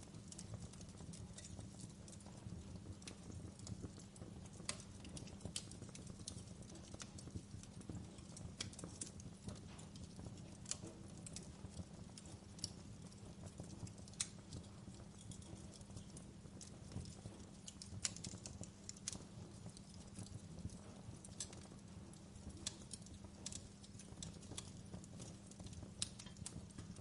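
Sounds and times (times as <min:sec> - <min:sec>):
wood fire crackling and popping: 0:00.0 - 0:27.0.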